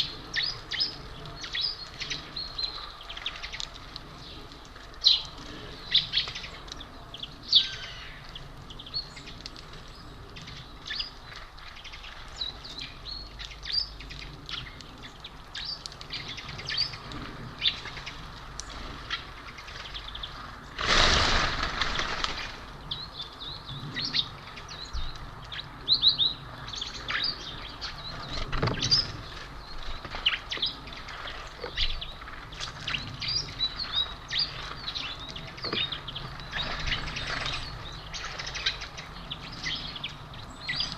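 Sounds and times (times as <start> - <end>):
small birds chirping: 0.0 - 40.9
loud rushing noise: 20.8 - 22.3.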